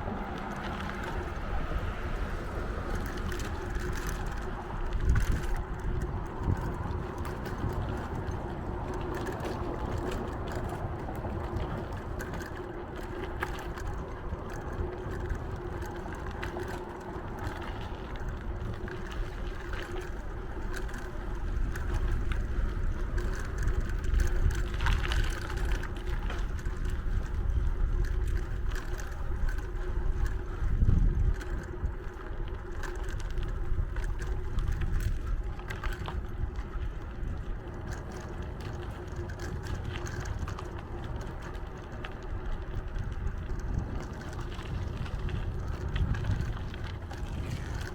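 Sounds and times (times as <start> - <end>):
wind and road noise: 0.0 - 47.9.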